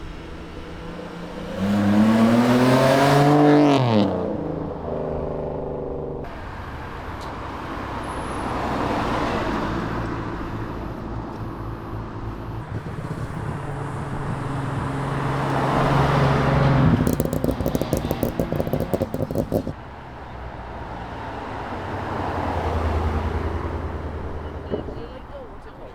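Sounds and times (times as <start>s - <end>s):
cars driving past: 0.0s - 25.9s
road noise: 0.0s - 25.9s
rapidly pulsing exhaust: 9.8s - 19.8s.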